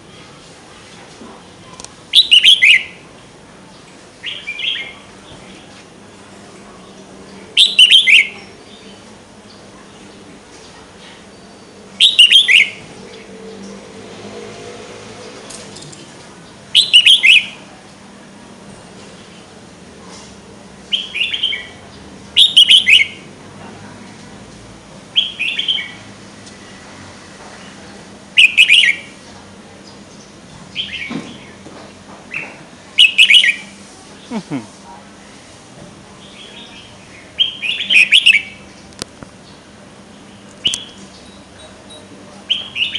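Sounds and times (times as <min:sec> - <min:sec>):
songbird whistling phrases: 0:02.1 - 0:03.0, 0:07.6 - 0:08.5, 0:12.0 - 0:12.8, 0:16.8 - 0:17.6, 0:22.4 - 0:23.2, 0:28.4 - 0:29.1, 0:32.4 - 0:33.7, 0:37.4 - 0:38.6, 0:40.6 - 0:41.4
songbird chirping: 0:36.2 - 0:42.9.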